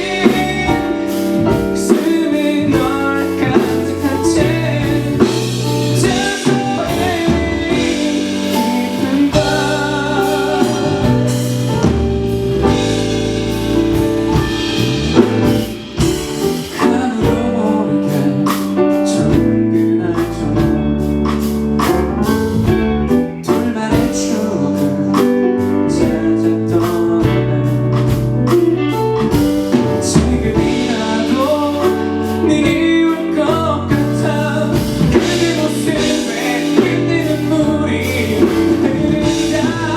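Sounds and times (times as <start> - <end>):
male singer singing: 0.0 - 12.0, 16.0 - 22.4, 23.2 - 39.9
drums and cymbals: 0.0 - 39.9
live band playing: 0.0 - 39.9.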